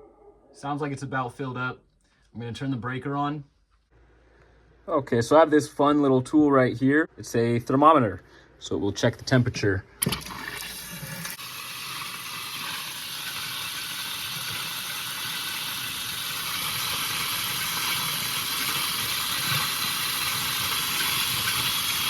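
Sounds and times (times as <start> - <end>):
water running from a tap: 10.0 - 22.0.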